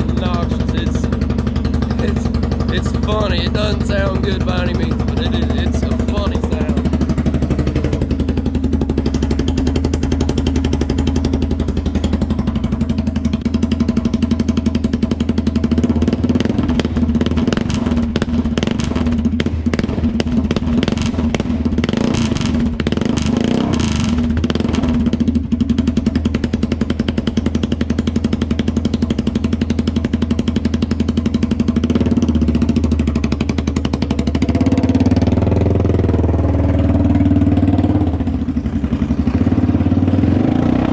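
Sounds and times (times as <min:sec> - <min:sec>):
open exhaust engine popping: 0:00.0 - 0:40.9.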